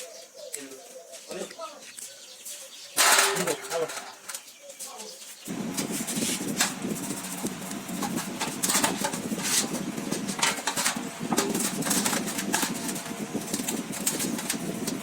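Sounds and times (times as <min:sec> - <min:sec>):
motor running: 0:05.5 - 0:15.0
rapid clicking and rattling: 0:05.5 - 0:15.0.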